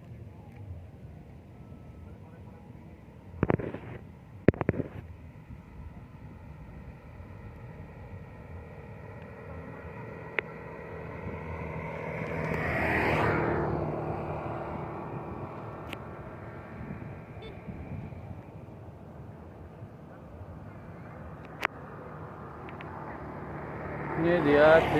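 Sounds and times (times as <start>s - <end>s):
vehicle passing by: 5.3s - 24.9s.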